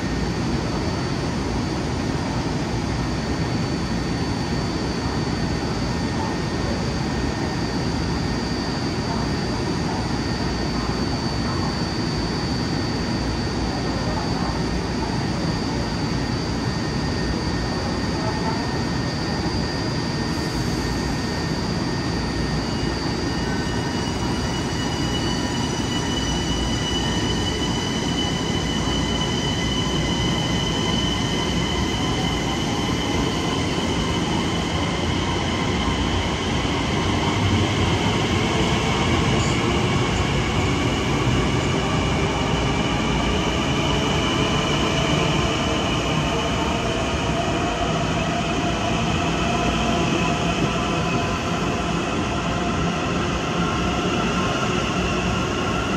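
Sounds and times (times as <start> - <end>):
electric train rumbling: 19.4 - 55.9.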